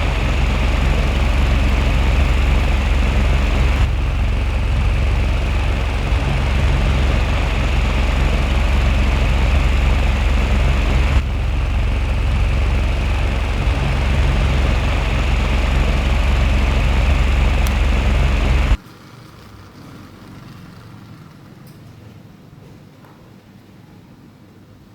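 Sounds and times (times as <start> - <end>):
small fan motor whirring: 0.0 - 18.8.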